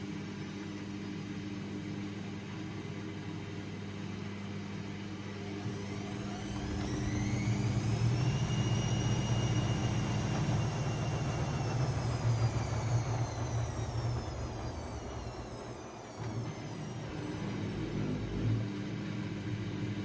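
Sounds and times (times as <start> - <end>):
washing machine motor whine: 0.0 - 20.0
drum turning rumble: 6.1 - 18.7.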